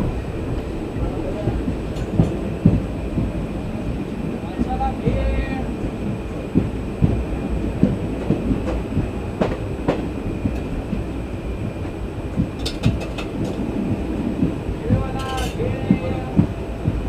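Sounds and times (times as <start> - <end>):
train rumbling: 0.0 - 17.0
wheels clattering over track: 12.4 - 13.8, 14.4 - 16.5.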